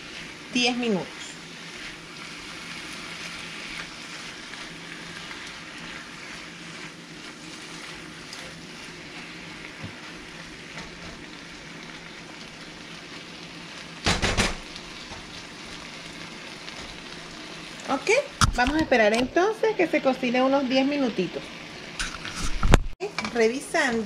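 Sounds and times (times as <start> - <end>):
fish sizzling in frying pan: 0.0 - 24.0
loud clatter of knocks: 14.1 - 14.6.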